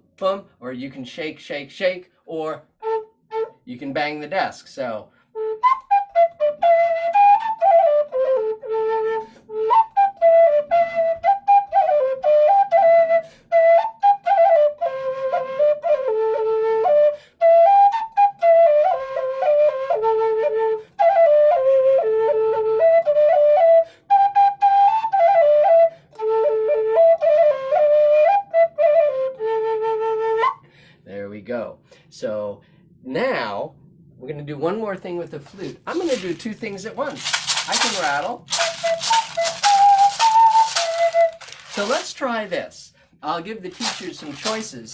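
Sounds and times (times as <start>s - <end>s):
flute melody: 2.8s - 3.7s, 5.3s - 30.6s, 35.6s - 42.5s, 43.7s - 44.9s
flute player breathing: 5.1s - 5.6s, 9.1s - 9.6s, 13.1s - 13.6s, 17.0s - 17.4s, 20.7s - 21.1s, 23.8s - 24.2s, 25.8s - 26.2s, 30.5s - 31.1s, 31.8s - 33.0s.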